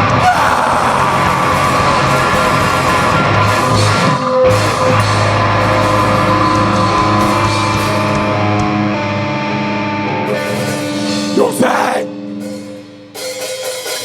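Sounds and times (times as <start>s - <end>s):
distorted electric guitar chords: 0.0s - 14.0s
sustained low note: 0.8s - 11.2s.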